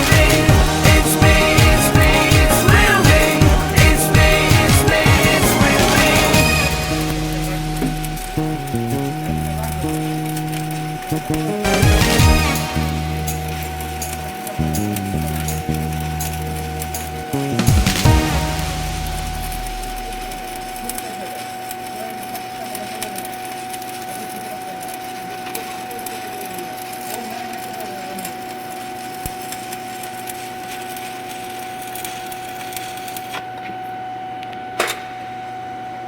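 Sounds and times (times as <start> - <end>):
welder hum: 0.0 - 21.4
welding arc crackling: 0.0 - 33.3.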